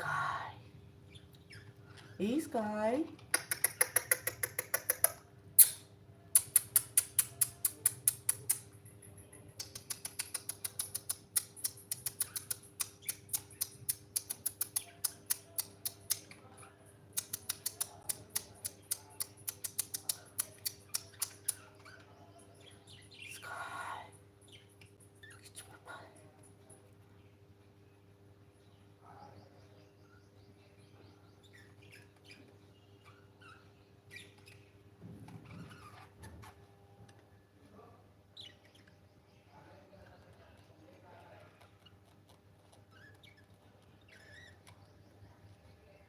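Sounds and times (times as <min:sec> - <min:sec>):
bird rapid clicking: 0:03.2 - 0:08.7, 0:09.6 - 0:16.4, 0:17.1 - 0:21.6.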